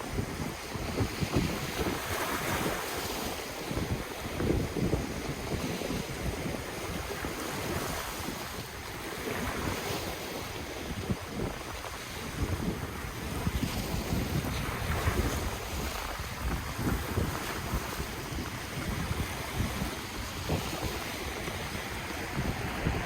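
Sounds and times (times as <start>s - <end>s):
ocean surf washing: 0.0s - 23.0s
wind on microphone: 0.0s - 23.0s.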